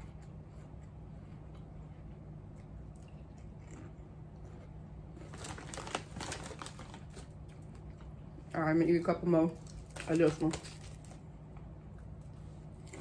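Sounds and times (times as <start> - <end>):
low steady hum: 0.0 - 13.0
crunching potato chips: 2.6 - 8.1.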